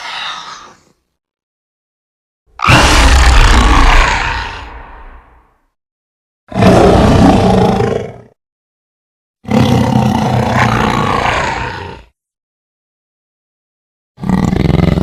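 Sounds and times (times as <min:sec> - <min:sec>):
creature roar: 0:02.6 - 0:05.4, 0:06.5 - 0:08.3, 0:09.4 - 0:12.1.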